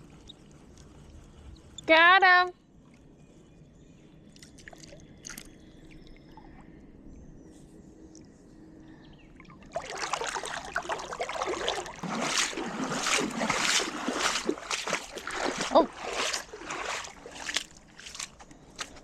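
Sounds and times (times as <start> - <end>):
thin bird chirps: 3.0 - 9.7
water splashing and trickling: 4.3 - 6.6, 9.4 - 19.0.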